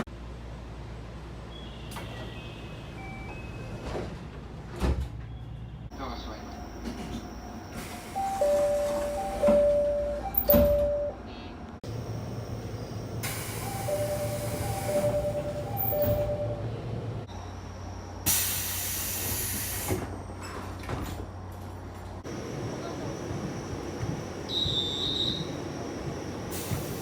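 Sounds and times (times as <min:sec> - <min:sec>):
two-note door chime: 0:08.2 - 0:11.2
train doors knocking shut: 0:08.4 - 0:11.1
pneumatic door air hiss: 0:13.2 - 0:15.2, 0:18.2 - 0:20.2, 0:26.5 - 0:27.0.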